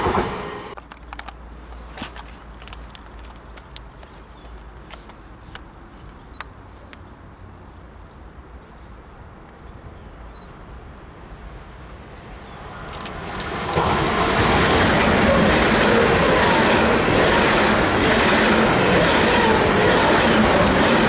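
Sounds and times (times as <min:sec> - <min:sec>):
high-speed train passing: 0:00.0 - 0:00.8, 0:10.7 - 0:21.0
wheels on rail: 0:11.6 - 0:21.0.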